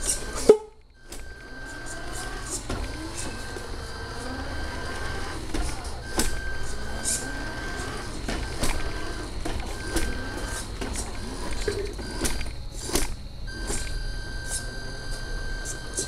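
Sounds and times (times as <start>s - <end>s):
toy truck motor whine: 0.0s - 16.0s
sharp clicks and knocks: 5.2s - 14.7s.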